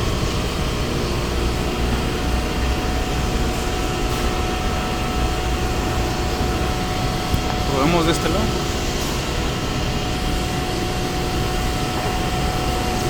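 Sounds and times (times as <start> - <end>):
machinery rumble and hum: 0.0 - 13.0.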